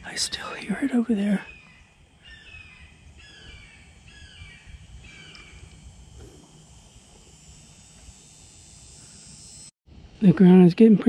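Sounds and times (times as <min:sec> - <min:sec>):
bird call: 0:01.3 - 0:05.8.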